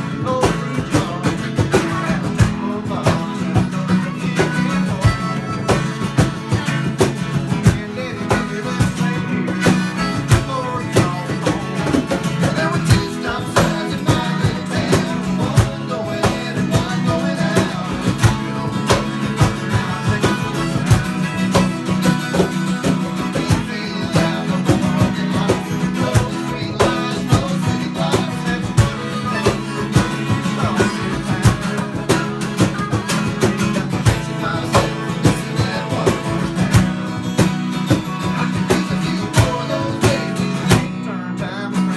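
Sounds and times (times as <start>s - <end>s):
acoustic guitar strumming: 0.0s - 41.9s
country band playing live: 0.0s - 41.9s.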